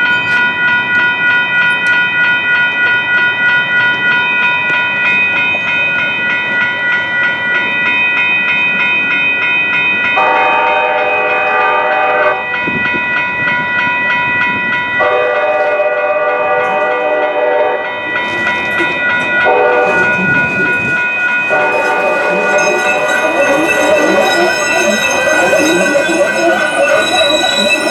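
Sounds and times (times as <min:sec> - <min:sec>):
crossing warning bells ringing: 0:00.0 - 0:27.9
train horn blasts: 0:10.2 - 0:12.4, 0:15.0 - 0:18.4, 0:19.4 - 0:20.6, 0:21.5 - 0:27.9.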